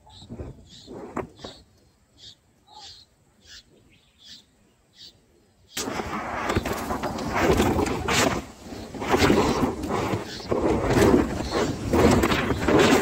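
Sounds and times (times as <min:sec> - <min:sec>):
nestlings peeping: 0:00.0 - 0:05.8, 0:08.7 - 0:10.6
bird wings fluttering: 0:05.8 - 0:13.0.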